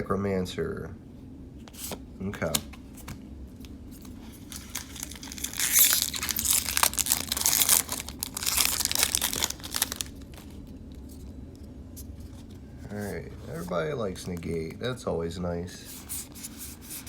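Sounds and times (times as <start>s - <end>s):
foil wrapper crinkling and tearing: 4.0s - 11.2s.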